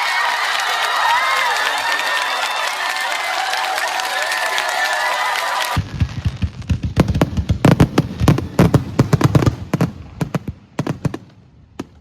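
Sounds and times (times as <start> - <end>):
fireworks bangs and crackles: 5.6 - 12.0.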